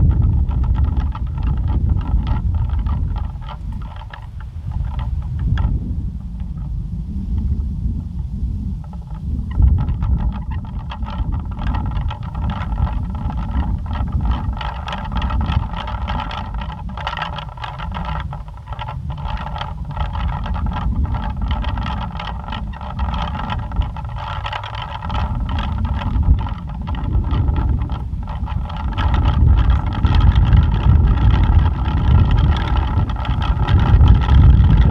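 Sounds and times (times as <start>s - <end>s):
wind rumble on microphone: 0.0s - 34.9s
pinwheel whirring: 8.9s - 34.9s.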